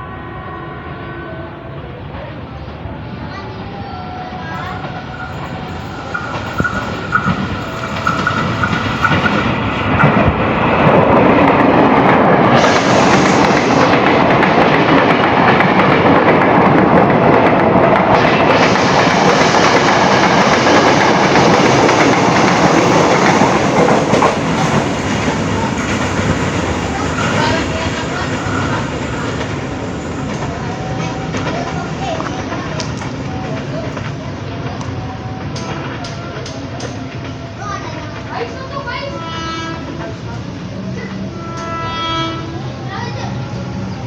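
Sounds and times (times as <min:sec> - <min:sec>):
train passing close by: 0:00.0 - 0:44.0.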